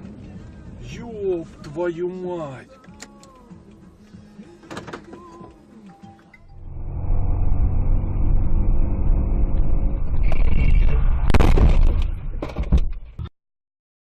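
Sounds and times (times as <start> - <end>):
car driving rumble: 6.4 - 13.2
loud crash: 6.5 - 13.1.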